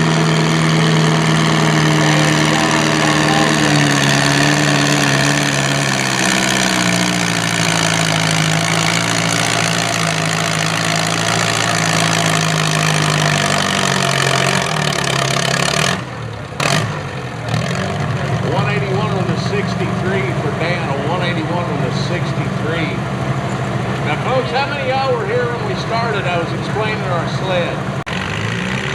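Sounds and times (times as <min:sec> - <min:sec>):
tractor engine running hard: 0:00.0 - 0:28.9.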